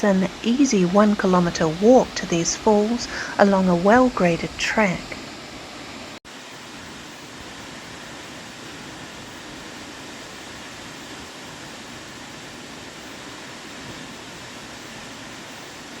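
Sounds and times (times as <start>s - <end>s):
waterfall rushing: 0.0s - 6.7s.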